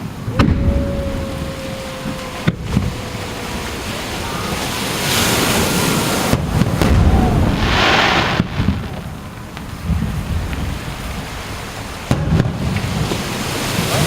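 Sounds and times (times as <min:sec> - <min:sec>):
fireworks bangs with rumble: 0:00.0 - 0:00.8, 0:06.2 - 0:11.3, 0:12.0 - 0:13.3
fireworks hissing crackle: 0:02.4 - 0:14.0.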